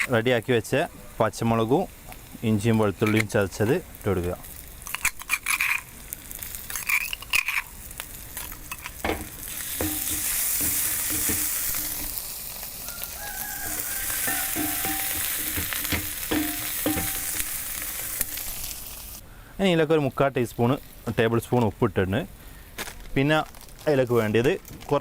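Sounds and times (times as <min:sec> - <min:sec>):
onions sizzling in oil: 0:01.6 - 0:19.2
spatula scraping pan: 0:08.4 - 0:12.2, 0:13.3 - 0:18.3.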